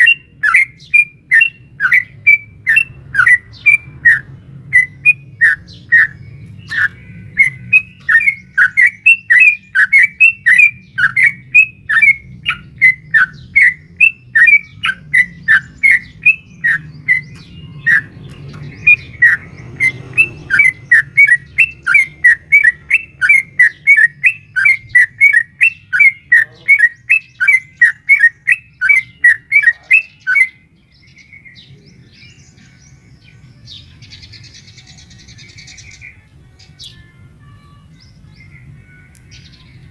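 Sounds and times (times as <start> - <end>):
bird calling rapid notes: 0.0 - 30.6.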